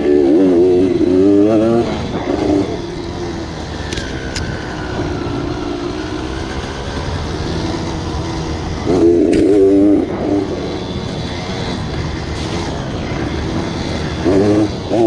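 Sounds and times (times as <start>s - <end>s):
dirt bike engine revving: 0.0s - 15.0s
sharp clicks: 3.8s - 4.6s.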